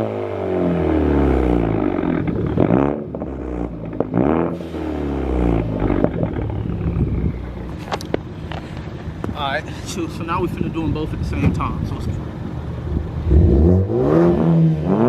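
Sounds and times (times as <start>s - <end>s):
car engine revving: 0.0s - 9.3s, 11.2s - 15.0s
exhaust pops: 1.1s - 12.3s.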